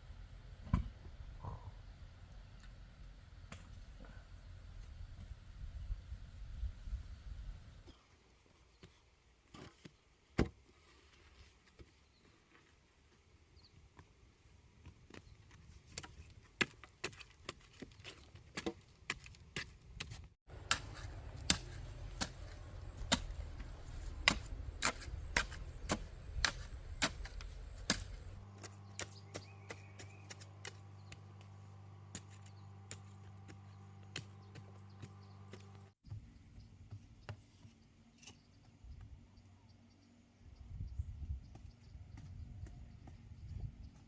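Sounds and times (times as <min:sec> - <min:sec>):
blade chopping: 0:20.0 - 0:30.8
steady low hum: 0:20.5 - 0:44.0.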